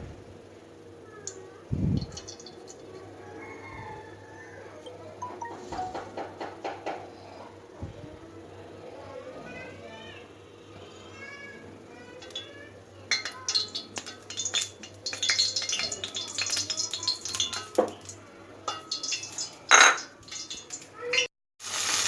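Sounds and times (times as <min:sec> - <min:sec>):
metal utensils clattering on pots: 0:02.0 - 0:03.0, 0:12.2 - 0:21.3.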